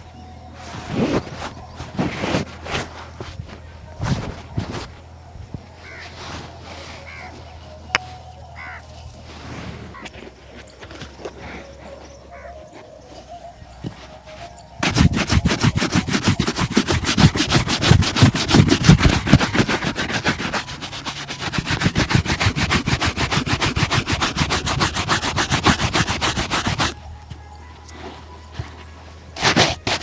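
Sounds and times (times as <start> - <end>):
shoe-shine brush strokes: 5.8 - 10.8, 13.2 - 28.6, 29.4 - 30.0.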